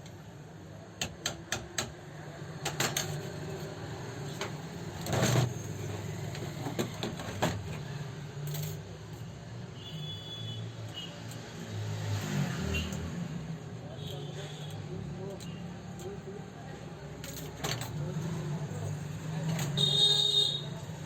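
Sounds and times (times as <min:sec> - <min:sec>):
clicks and knocks of tools: 0:02.6 - 0:09.3.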